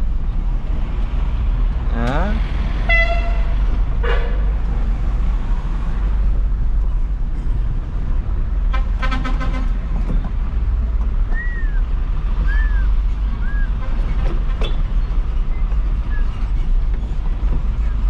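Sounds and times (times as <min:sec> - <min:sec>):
truck diesel engine rumbling: 0:00.0 - 0:18.0
vehicle horn toots: 0:02.9 - 0:04.5.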